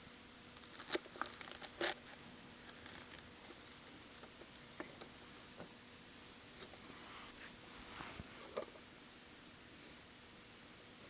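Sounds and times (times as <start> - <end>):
plastic packaging crinkling and tearing: 0.5 - 3.8.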